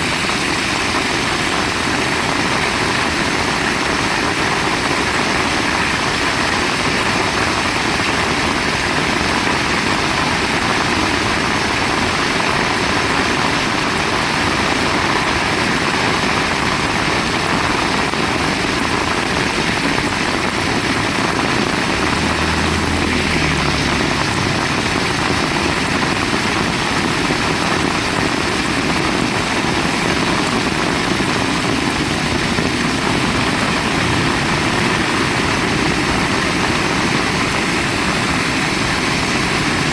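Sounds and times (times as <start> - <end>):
heavy rain pouring: 0.0 - 39.9
low rumble: 21.4 - 26.7.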